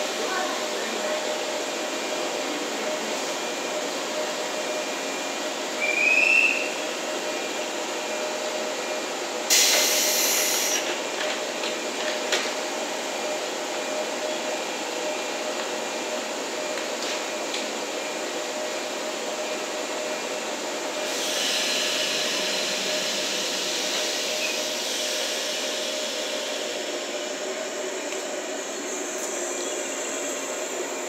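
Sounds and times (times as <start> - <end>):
electric train equipment humming: 0.0 - 31.0
rising whistle-like tone: 5.8 - 6.8
train doors closing: 9.4 - 13.2, 21.0 - 30.9
hiss of compressed air: 9.5 - 10.9, 21.0 - 26.9.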